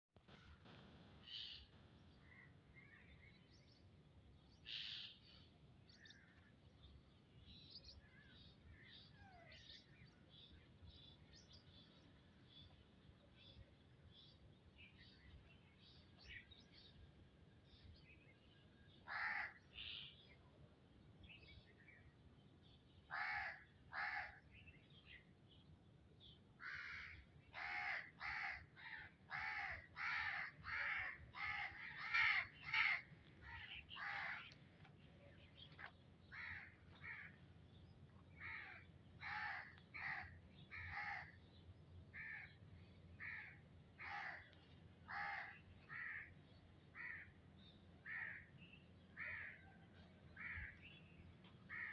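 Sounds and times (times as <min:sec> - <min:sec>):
bird harsh calls: 0:26.6 - 0:34.6.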